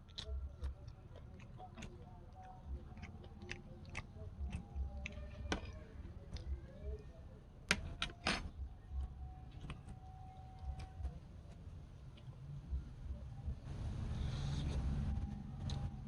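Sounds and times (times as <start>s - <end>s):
person chewing food: 0.0s - 7.0s.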